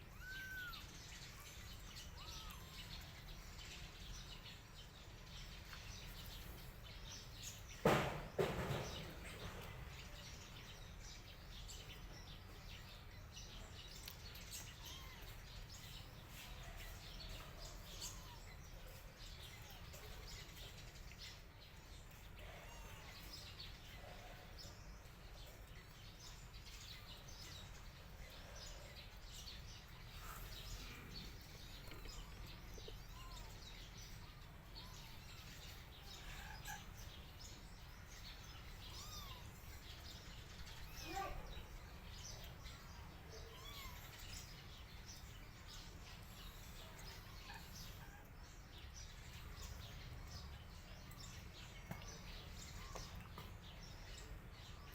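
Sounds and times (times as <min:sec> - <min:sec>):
birds chirping: 0:00.0 - 0:54.9
loud knocks: 0:07.8 - 0:09.5.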